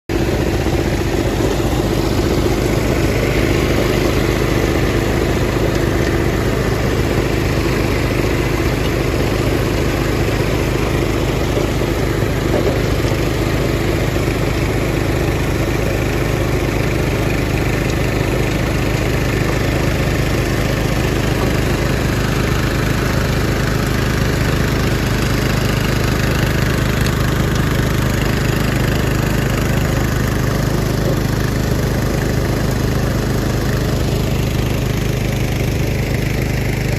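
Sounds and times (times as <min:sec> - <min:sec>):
garden tractor engine running: 0:00.1 - 0:36.9.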